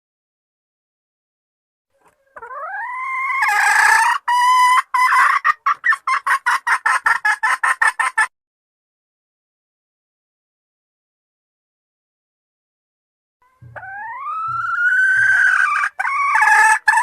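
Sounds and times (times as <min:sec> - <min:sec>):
junglefowl hen calling: 0:02.0 - 0:08.3, 0:13.4 - 0:17.0.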